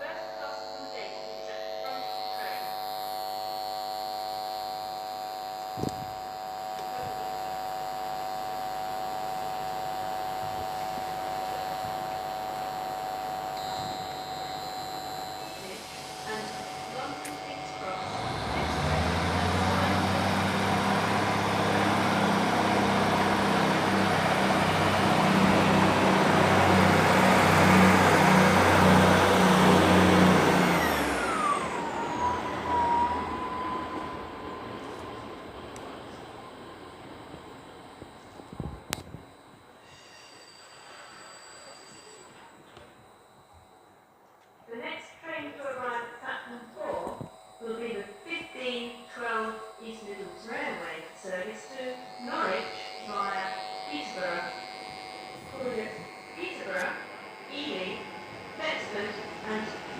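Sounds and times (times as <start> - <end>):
train whine dropping in pitch: 0.0 - 44.3, 45.5 - 59.9
electrical buzz from microphone: 0.0 - 59.9
train passing rumble: 32.3 - 37.9.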